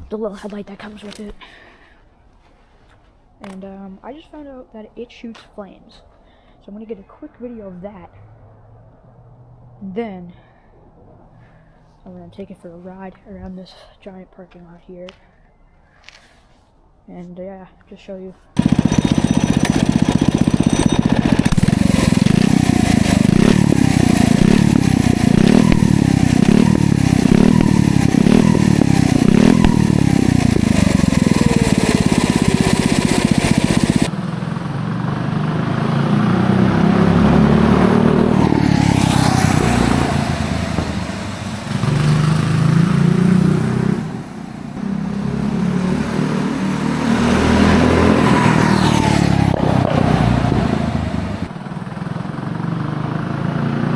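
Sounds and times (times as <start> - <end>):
minibike engine revving: 18.6 - 53.9
minibike engine under throttle: 18.6 - 53.9.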